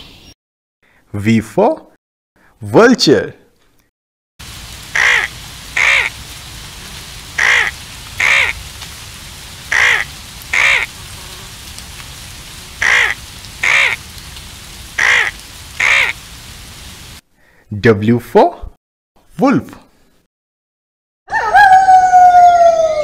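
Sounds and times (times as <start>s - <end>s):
steady hiss: 4.4s - 17.2s
bird harsh calls: 4.8s - 8.8s, 9.4s - 11.6s, 12.6s - 16.3s.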